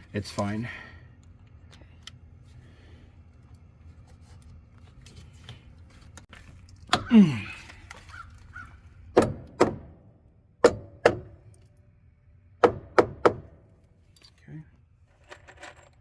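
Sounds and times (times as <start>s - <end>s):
knocks on wooden framing: 9.2s - 10.0s, 10.6s - 11.4s, 12.6s - 13.6s.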